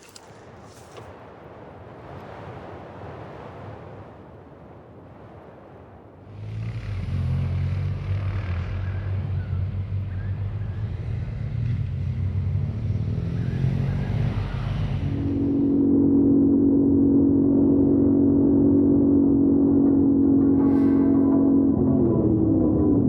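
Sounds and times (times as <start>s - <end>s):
low hum: 6.3s - 23.0s.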